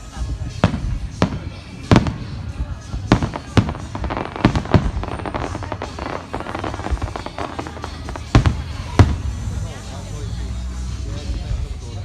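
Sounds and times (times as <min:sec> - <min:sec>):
fireworks crackling: 0:00.0 - 0:10.0
fireworks bangs: 0:00.1 - 0:09.7.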